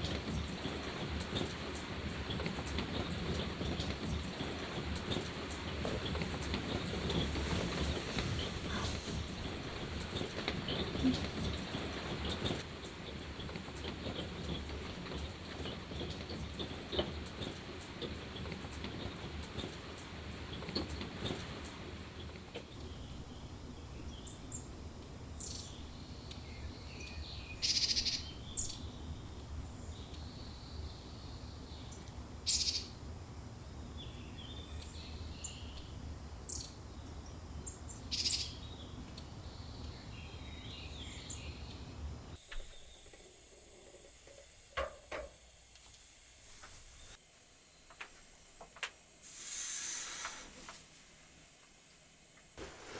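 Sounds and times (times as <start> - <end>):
birds chirping: 0.0 - 44.0
background hiss: 0.0 - 52.9.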